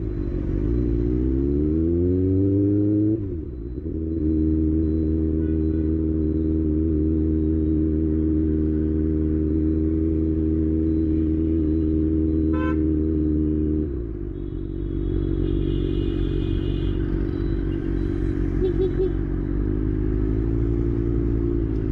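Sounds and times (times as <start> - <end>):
short beep: 16.6 - 20.4.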